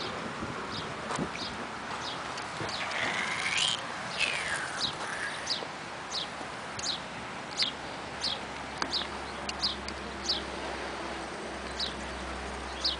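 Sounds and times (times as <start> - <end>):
background hiss: 0.0 - 12.9
small bird chirping: 1.4 - 7.0, 7.6 - 10.5.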